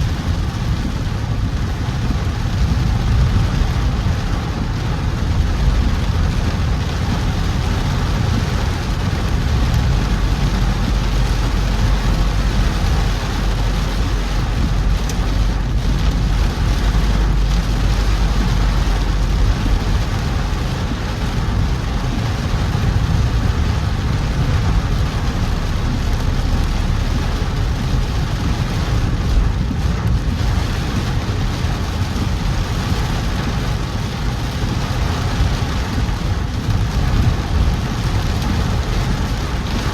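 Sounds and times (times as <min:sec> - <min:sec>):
car engine and tyres on wet road: 0:00.0 - 0:39.9
rain hissing: 0:00.0 - 0:39.9.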